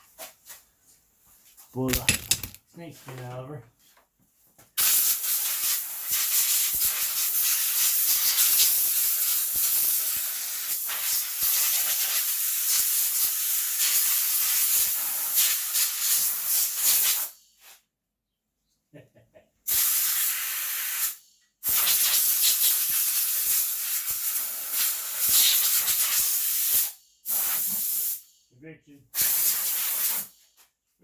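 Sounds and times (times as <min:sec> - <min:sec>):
pressurised gas hissing from nozzle: 0:04.8 - 0:17.4, 0:19.7 - 0:28.3, 0:29.2 - 0:30.4.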